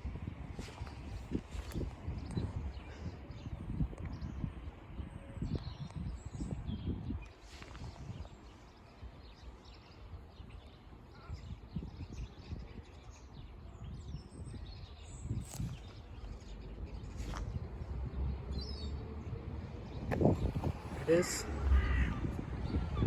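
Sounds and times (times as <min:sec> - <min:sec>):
outdoor background rumble: 0:15.0 - 0:23.0.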